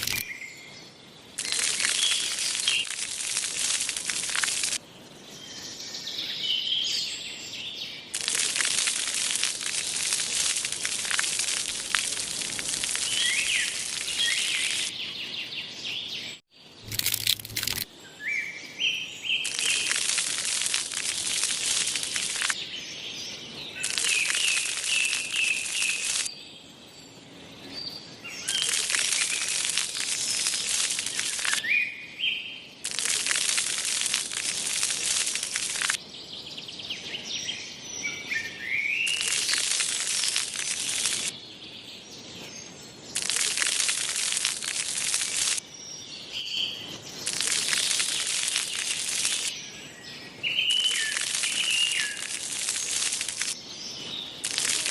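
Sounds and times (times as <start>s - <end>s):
small birds chirping: 0.0s - 54.9s
bursts of dense crackling: 1.4s - 4.8s, 8.1s - 14.9s, 19.4s - 22.6s, 23.8s - 26.3s, 28.6s - 31.6s, 32.8s - 36.0s, 39.1s - 41.3s, 43.2s - 45.6s, 47.3s - 49.5s, 51.1s - 53.6s, 54.4s - 54.9s.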